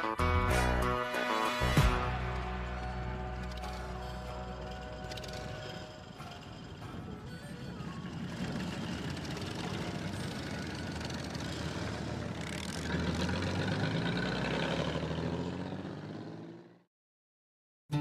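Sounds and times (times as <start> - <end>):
motorcycle engine accelerating: 7.9 - 16.9.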